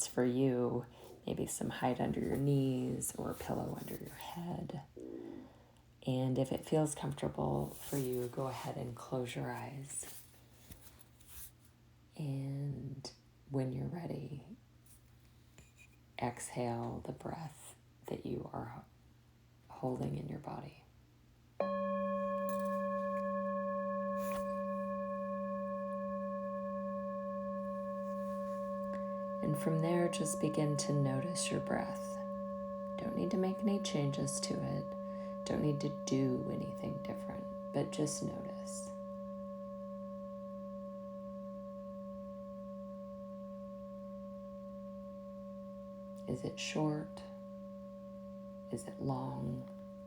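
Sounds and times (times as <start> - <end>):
singing bowl ringing: 21.6 - 50.0.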